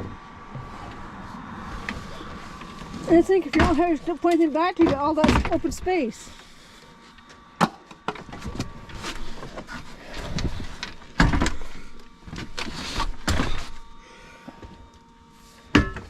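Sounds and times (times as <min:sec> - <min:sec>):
cabinet parts knocking and clunking: 0:04.8 - 0:05.9, 0:11.2 - 0:11.7.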